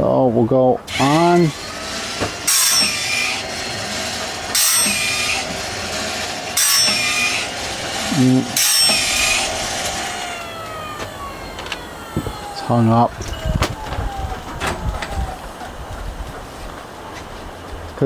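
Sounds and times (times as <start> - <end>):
hissing grind of sharpener: 0.9 - 13.6
motor running: 0.9 - 16.9.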